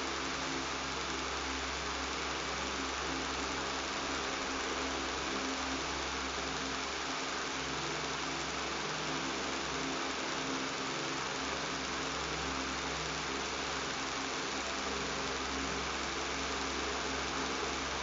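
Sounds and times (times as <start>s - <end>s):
electric fan running: 0.0s - 18.0s.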